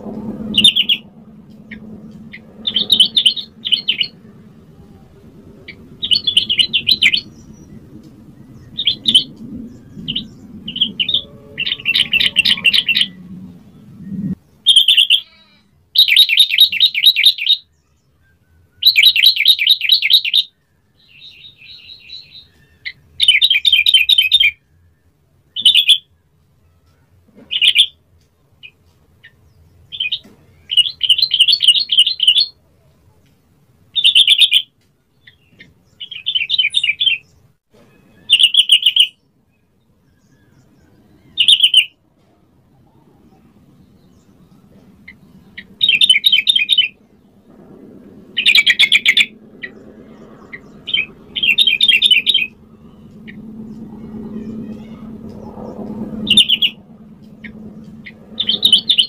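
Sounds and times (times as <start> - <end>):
bird singing chattering phrases: 1.7 - 17.6, 34.0 - 39.2, 48.4 - 59.0.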